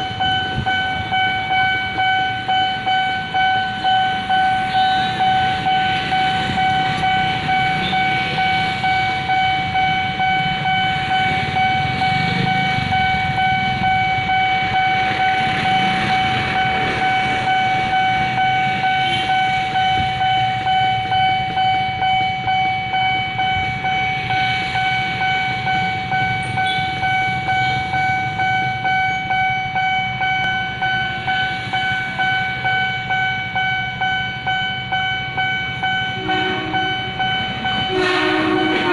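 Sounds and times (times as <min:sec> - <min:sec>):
level crossing warning alarm: 0:00.0 - 0:38.9.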